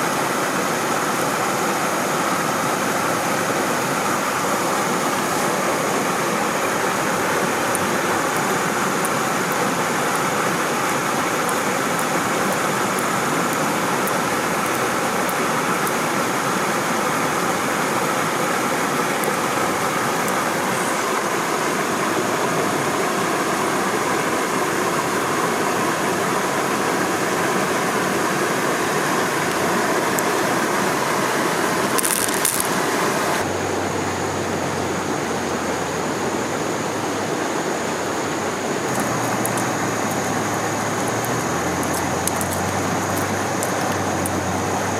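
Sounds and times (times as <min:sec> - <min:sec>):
stream water rushing: 0:00.0 - 0:44.9
faint clicks: 0:38.9 - 0:44.4.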